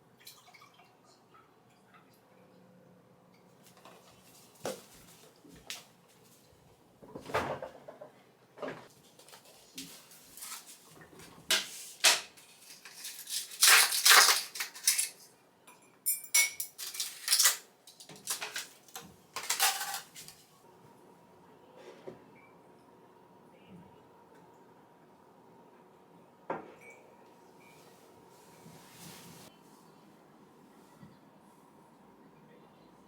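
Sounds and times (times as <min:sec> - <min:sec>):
dishes and cutlery clinking: 0:12.8 - 0:18.7, 0:19.4 - 0:20.3.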